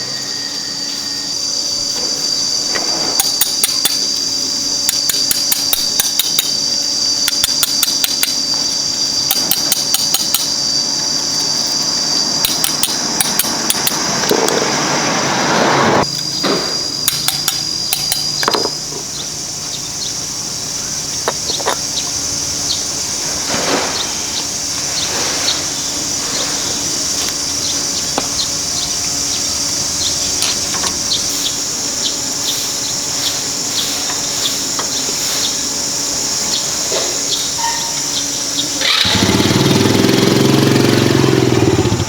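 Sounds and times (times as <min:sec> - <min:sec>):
insects buzzing: 0:00.0 - 0:42.0
hand tools clinking on metal: 0:03.1 - 0:10.7, 0:12.4 - 0:14.1, 0:17.0 - 0:19.2.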